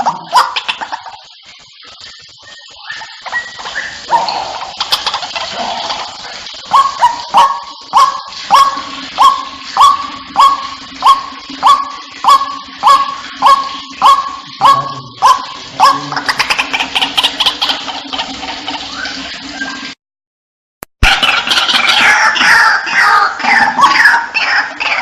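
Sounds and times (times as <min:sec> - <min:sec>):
waterhen call: 0:00.0 - 0:20.0, 0:21.0 - 0:25.0.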